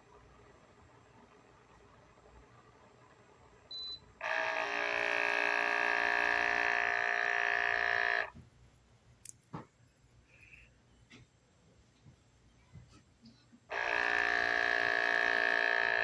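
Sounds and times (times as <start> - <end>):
espresso maker beep: 3.7 - 4.5
espresso maker pump buzzing: 4.2 - 8.4, 13.7 - 16.0
sharp clicks: 9.2 - 9.9.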